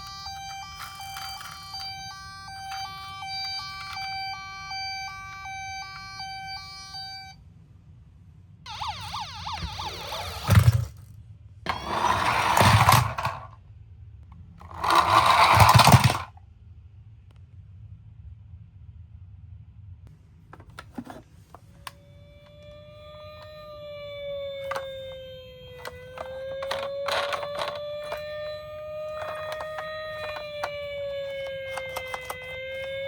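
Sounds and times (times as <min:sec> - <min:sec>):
plastic toys clattering: 0:00.0 - 0:04.1, 0:11.7 - 0:13.5, 0:14.6 - 0:16.3, 0:24.6 - 0:25.2, 0:25.8 - 0:33.0
toy two-tone siren: 0:00.0 - 0:07.4, 0:08.7 - 0:11.0, 0:11.7 - 0:13.5, 0:14.6 - 0:16.3, 0:21.7 - 0:33.0
toy thud: 0:08.9 - 0:11.0, 0:11.7 - 0:13.5, 0:14.6 - 0:16.3, 0:22.6 - 0:33.0.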